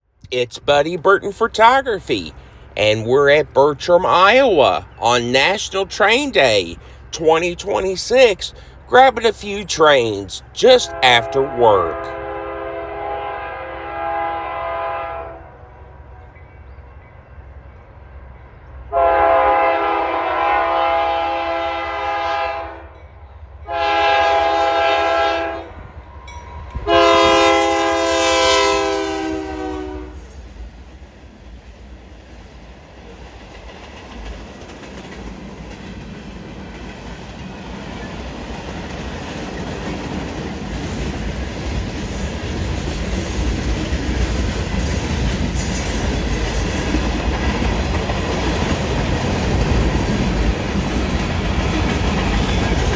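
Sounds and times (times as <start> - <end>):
train rumbling on rails: 0.0 - 52.9
locomotive air horn: 10.6 - 15.6, 18.9 - 22.9, 23.6 - 25.7, 26.8 - 30.3.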